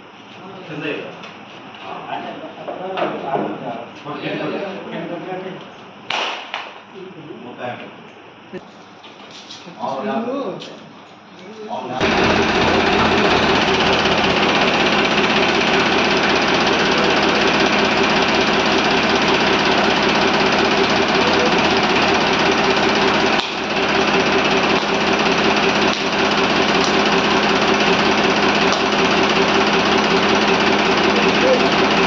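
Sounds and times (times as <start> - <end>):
tractor diesel engine clattering: 12.0 - 32.0.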